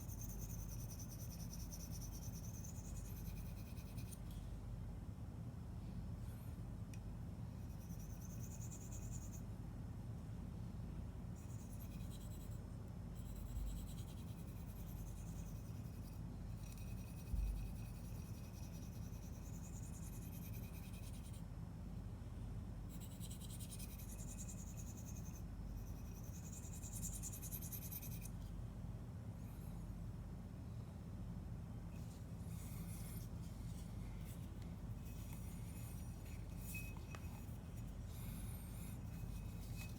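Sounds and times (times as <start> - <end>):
blade scraping on sharpening stone: 35.1 - 39.9.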